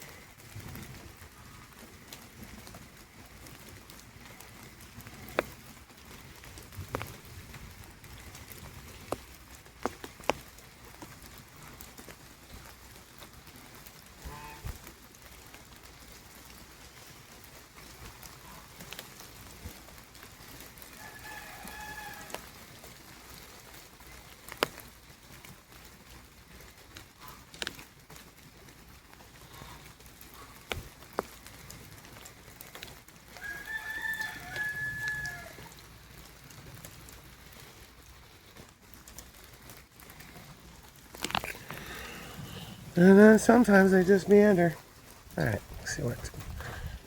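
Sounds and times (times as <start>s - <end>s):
rain pattering: 0.0s - 47.0s
rooster crowing: 20.9s - 22.6s, 33.4s - 35.8s.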